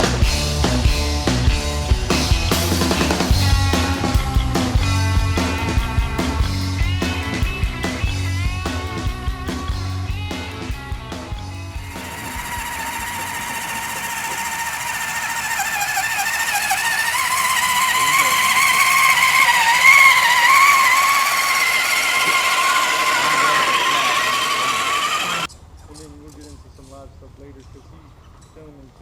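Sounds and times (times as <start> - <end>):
small electric motor whining: 11.8 - 25.5.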